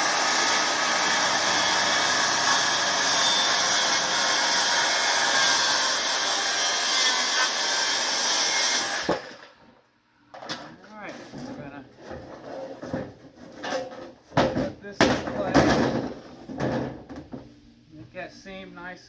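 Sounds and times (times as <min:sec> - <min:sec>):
circular saw whine: 0:00.0 - 0:05.3.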